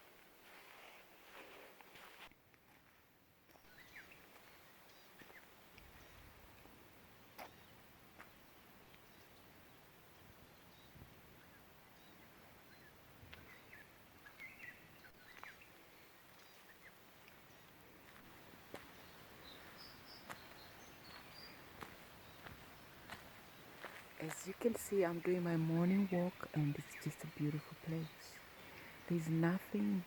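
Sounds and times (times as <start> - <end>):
quiet hiss: 0.0 - 30.0
faint bird chirps: 3.5 - 6.4, 7.4 - 18.2.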